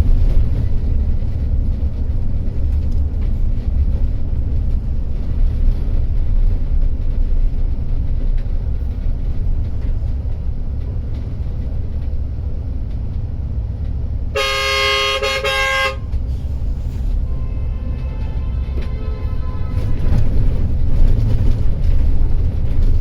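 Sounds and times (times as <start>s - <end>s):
bus engine and tyres rumbling: 0.0s - 23.0s
vehicle horn blaring: 14.3s - 16.2s, 17.2s - 20.6s.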